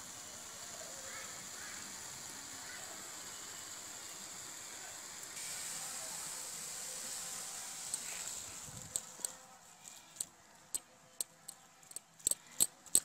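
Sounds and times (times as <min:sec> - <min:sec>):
spinach sizzling in oil: 0:00.1 - 0:09.3.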